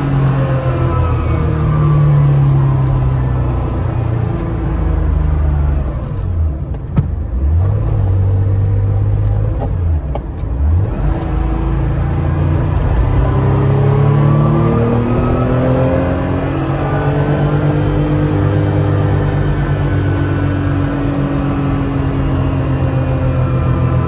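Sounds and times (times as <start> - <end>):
car engine from inside: 0.0 - 24.0.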